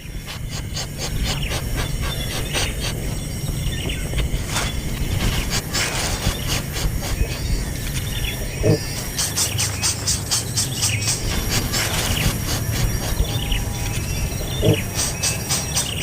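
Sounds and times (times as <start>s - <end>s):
high bird chirps: 0.0s - 16.0s
low background rumble: 0.0s - 16.0s.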